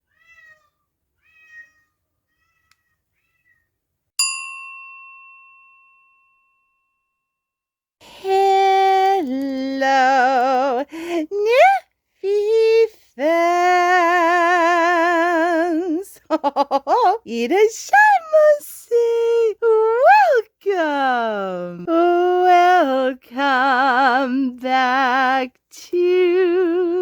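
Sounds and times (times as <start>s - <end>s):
cat meowing: 0.0s - 3.7s
bell-like ding: 4.2s - 7.4s.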